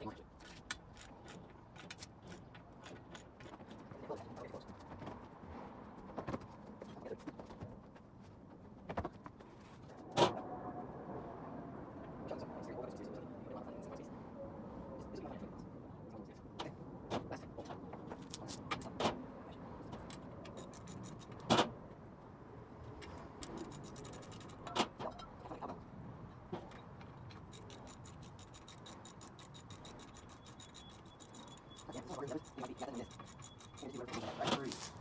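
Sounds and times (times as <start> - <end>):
fast faint ticking: 20.5 - 21.4, 23.4 - 24.8, 27.4 - 34.2
hand tools clanking on metal: 27.4 - 34.9.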